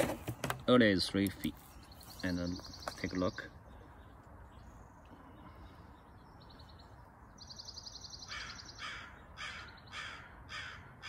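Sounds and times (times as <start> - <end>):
crow cawing: 8.3 - 11.0.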